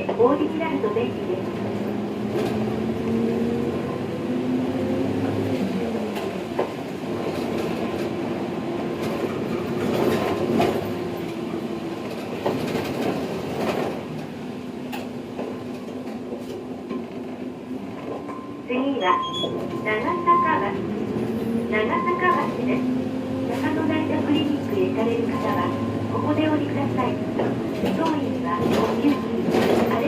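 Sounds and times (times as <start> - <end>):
bus engine running: 0.0 - 18.0, 19.6 - 30.0
bus body knocking and rattling: 5.1 - 18.4, 26.4 - 30.0.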